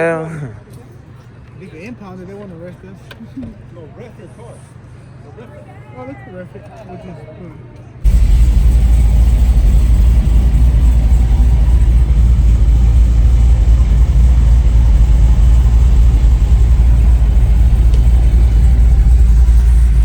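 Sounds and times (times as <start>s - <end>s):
vehicle engine running: 8.0s - 20.0s.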